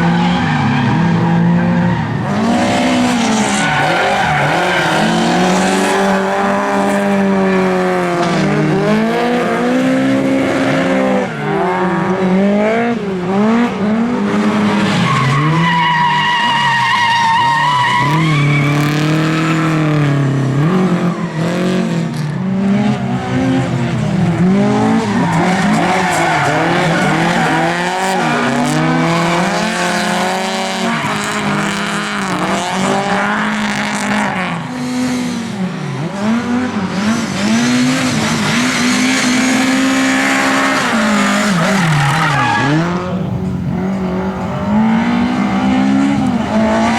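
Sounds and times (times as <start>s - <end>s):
race car engines revving: 0.0s - 46.9s
tyre squeal: 14.9s - 19.8s, 38.6s - 46.9s.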